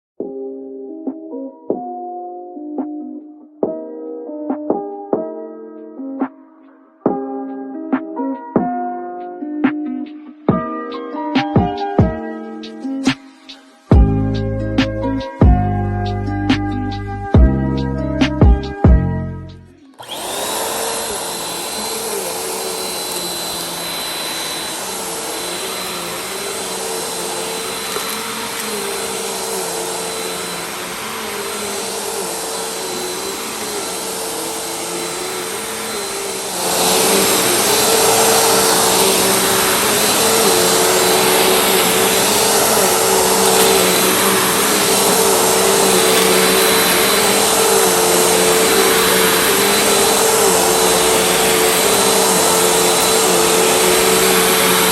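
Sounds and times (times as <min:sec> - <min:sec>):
vacuum cleaner running: 0:11.6 - 0:17.6, 0:19.9 - 0:54.9.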